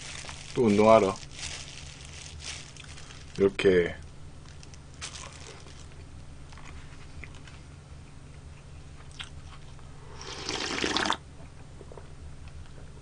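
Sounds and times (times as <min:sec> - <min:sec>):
steady low hum: 0:00.0 - 0:13.0
person chewing food: 0:06.6 - 0:07.5, 0:09.0 - 0:09.8
loud slurp: 0:10.2 - 0:11.2.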